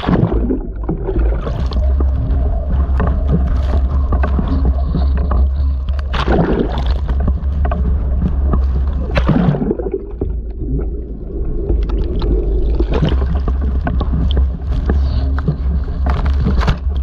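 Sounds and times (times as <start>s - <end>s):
rattles and clicks: 11.6s - 17.0s.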